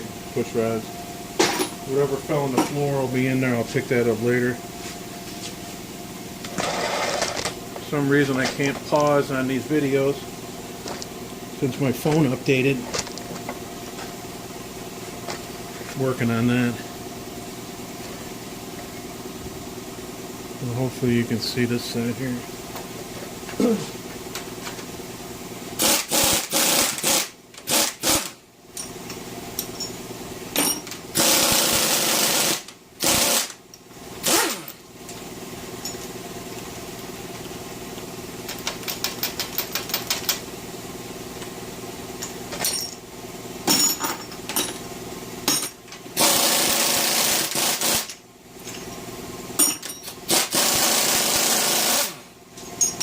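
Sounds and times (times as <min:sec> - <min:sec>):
steady low hum: 0:00.0 - 0:27.7
pneumatic impact wrench: 0:06.5 - 0:07.5, 0:25.8 - 0:28.4, 0:30.5 - 0:33.6, 0:34.2 - 0:34.8, 0:45.4 - 0:48.2, 0:49.6 - 0:53.0.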